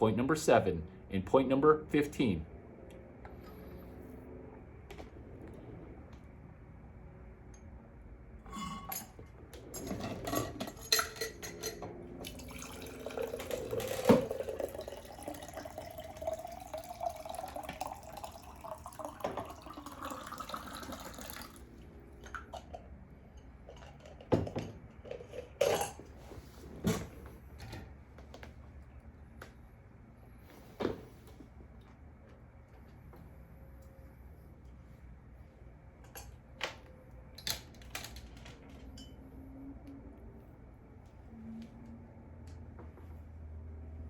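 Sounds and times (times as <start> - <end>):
liquid pouring into container: 12.2 - 21.8.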